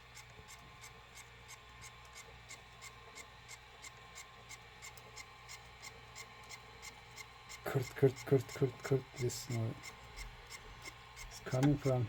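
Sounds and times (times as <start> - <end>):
tape transport hum: 0.0 - 12.0
rhythmic grinding scrape: 7.6 - 12.0.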